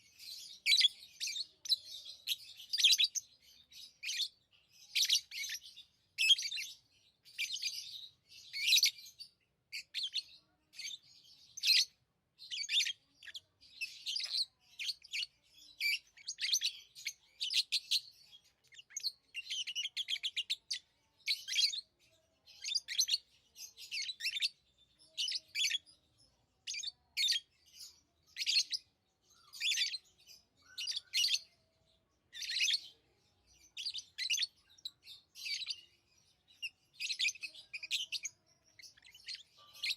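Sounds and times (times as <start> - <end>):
lovebirds chirping: 0.0 - 39.9.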